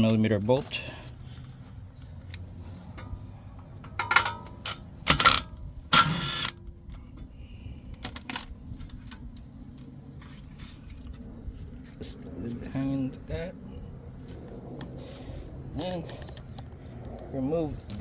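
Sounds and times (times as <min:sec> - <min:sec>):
metal tools clinking: 0:02.8 - 0:06.5
sharp metallic clanks: 0:03.0 - 0:06.6.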